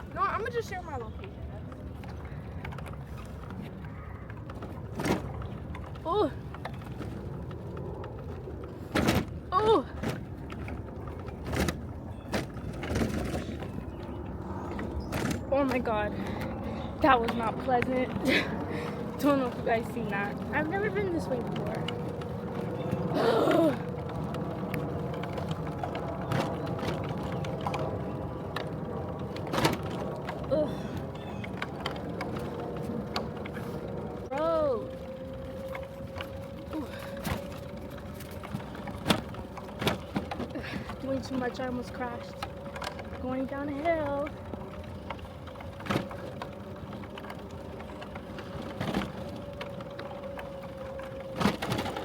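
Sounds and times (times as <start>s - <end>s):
road and wind noise: 0.0s - 52.0s
tyres rumbling: 0.0s - 52.0s.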